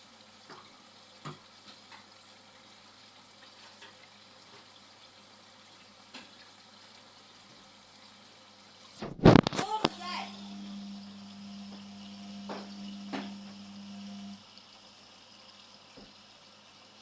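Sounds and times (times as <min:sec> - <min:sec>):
washing machine watery hiss: 0:00.0 - 0:17.0.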